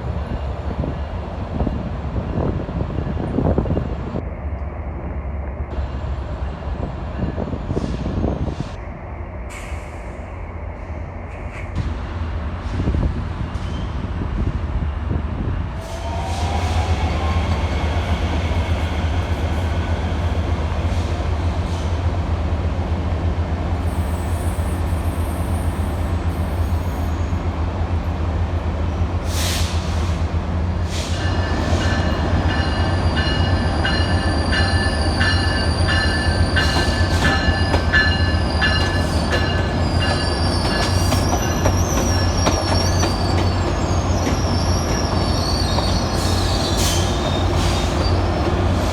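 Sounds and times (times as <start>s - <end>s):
train rumbling on tracks: 0.0s - 48.9s
wheels squealing against rails: 12.8s - 14.2s, 23.8s - 27.5s, 30.8s - 48.9s.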